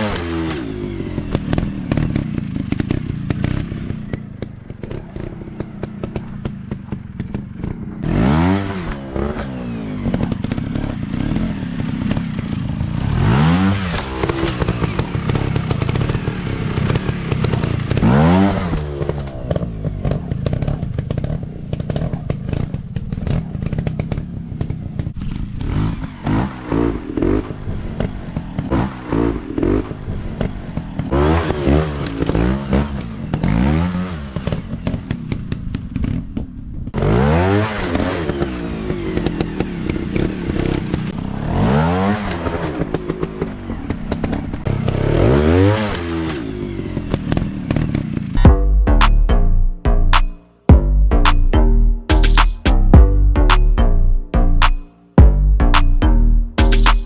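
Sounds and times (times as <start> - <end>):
dirt bike engines revving: 0.0 - 36.0.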